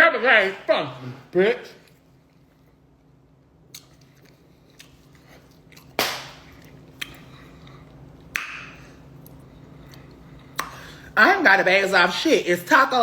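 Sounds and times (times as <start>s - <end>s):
faint steady hum: 0.0s - 13.0s
taco crunching: 3.5s - 10.9s.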